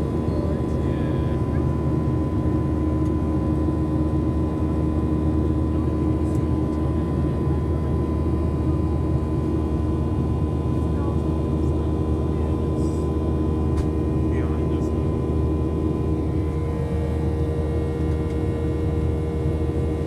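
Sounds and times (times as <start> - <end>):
airliner cabin engine hum: 0.0 - 20.0
thin steady whine: 11.0 - 20.0.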